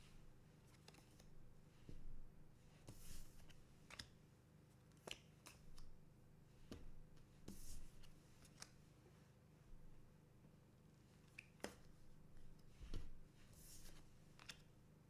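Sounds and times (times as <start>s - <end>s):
soft clicks of trading cards: 0.6s - 1.3s, 2.8s - 4.2s, 4.8s - 6.0s, 6.6s - 8.9s, 11.2s - 12.0s, 13.8s - 14.8s.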